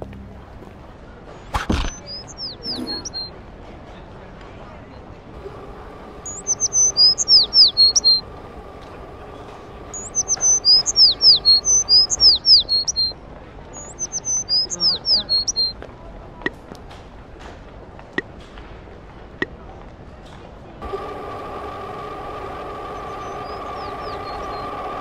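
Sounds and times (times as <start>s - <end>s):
songbird singing: 1.8s - 3.4s, 5.4s - 15.8s, 20.8s - 25.0s.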